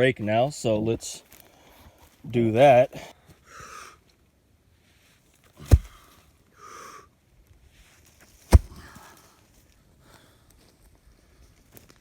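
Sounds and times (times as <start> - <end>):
rake thudding on ground: 5.6 - 6.1, 8.2 - 9.1.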